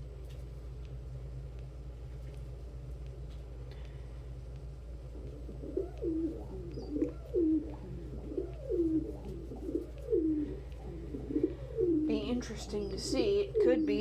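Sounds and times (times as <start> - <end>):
low hum: 0.0 - 14.0
pigeon cooing: 5.1 - 14.0.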